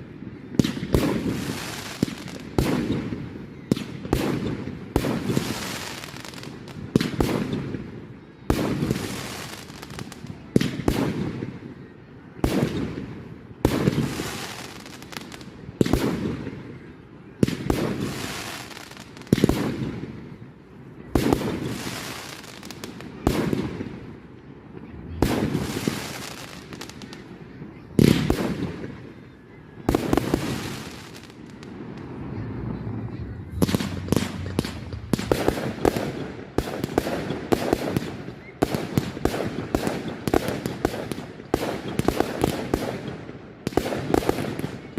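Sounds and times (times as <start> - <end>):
rapid small firework reports: 0.0 - 44.9
fireworks banging: 29.8 - 44.9.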